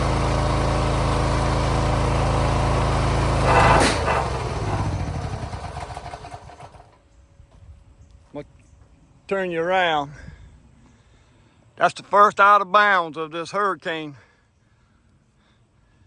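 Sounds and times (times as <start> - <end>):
engine running: 0.0 - 7.8.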